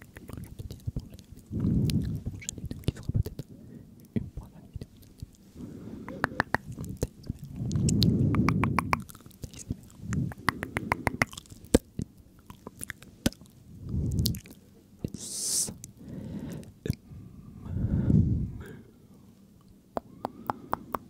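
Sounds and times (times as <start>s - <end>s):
wet mouth clicks and smacks: 0.0s - 3.4s, 6.1s - 15.2s, 20.0s - 21.0s.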